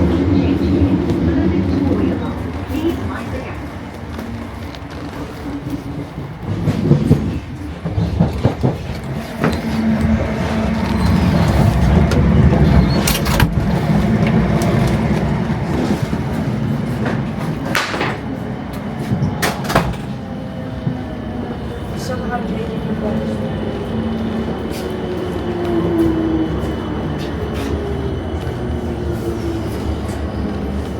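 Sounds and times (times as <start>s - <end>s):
train wheels and motors rumbling: 0.0s - 30.9s
wheels clicking on rail joints: 0.8s - 20.2s.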